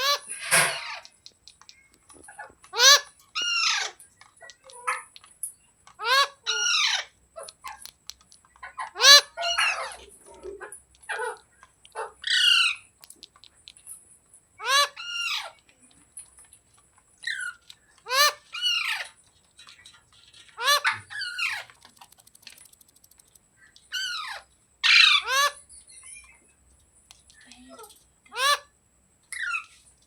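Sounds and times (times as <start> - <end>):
parrot squawking: 0.0 - 1.0, 2.7 - 4.0, 6.0 - 7.5, 8.8 - 10.0, 14.6 - 15.5, 18.1 - 19.1, 20.6 - 22.3, 23.9 - 25.6.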